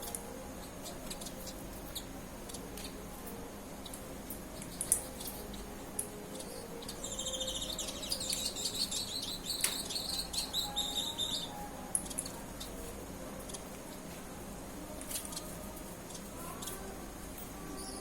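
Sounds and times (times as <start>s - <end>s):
small songbirds chirping: 3.8s - 12.8s.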